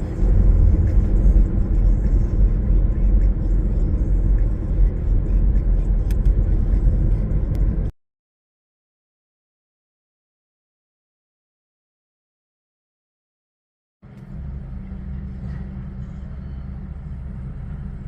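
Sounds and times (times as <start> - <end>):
car driving rumble: 0.0 - 7.9, 14.0 - 18.0.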